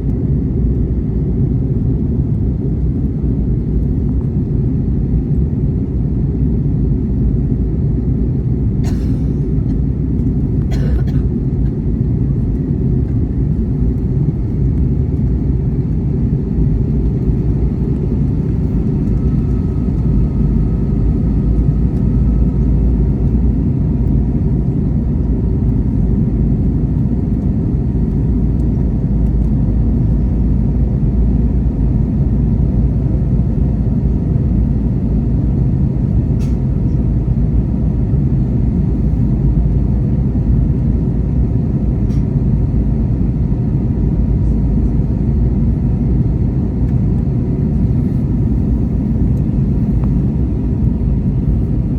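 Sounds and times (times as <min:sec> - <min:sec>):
airliner engine rumble: 0:00.0 - 0:51.9.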